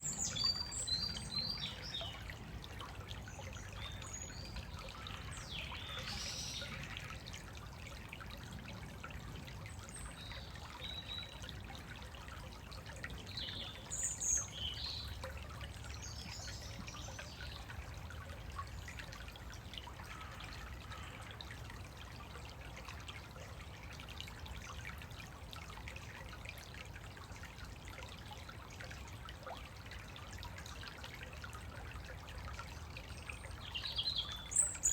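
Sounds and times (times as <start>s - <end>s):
stream trickling: 0.0s - 34.9s
songbirds chirping: 9.6s - 21.5s, 32.5s - 34.9s.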